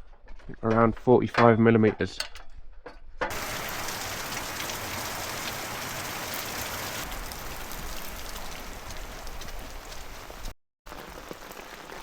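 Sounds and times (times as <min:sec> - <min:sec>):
sharp drips: 0:03.3 - 0:12.0
steady rain hiss: 0:03.3 - 0:12.0.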